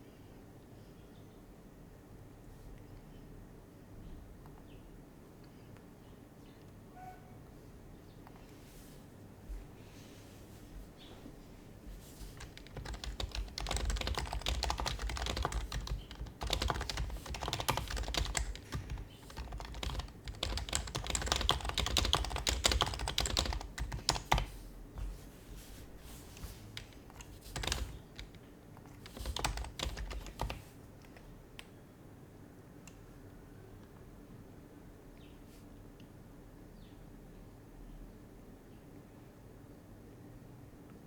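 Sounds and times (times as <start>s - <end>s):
keyboard typing: 12.0s - 31.7s.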